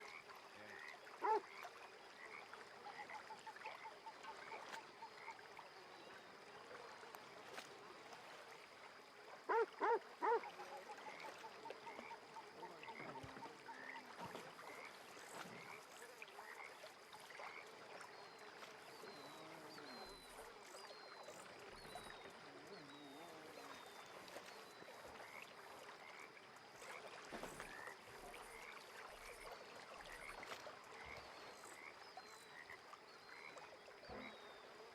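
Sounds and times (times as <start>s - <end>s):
frogs chirping and trilling: 0.0s - 6.1s, 9.5s - 27.1s, 27.7s - 34.7s
waterfowl honking: 9.5s - 10.4s.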